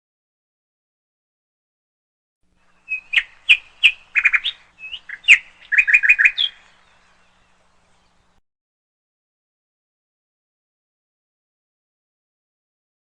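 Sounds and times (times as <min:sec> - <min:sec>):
canary chirping: 0:02.7 - 0:07.4.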